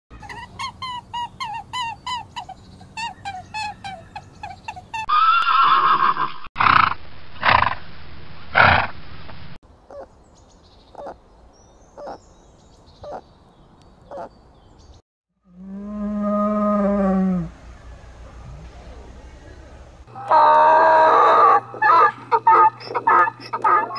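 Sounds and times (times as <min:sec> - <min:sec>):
high-pitched animal calls: 0:00.2 - 0:06.8, 0:10.9 - 0:11.2, 0:14.1 - 0:14.3, 0:20.1 - 0:23.9
horse whinnying: 0:05.1 - 0:06.5.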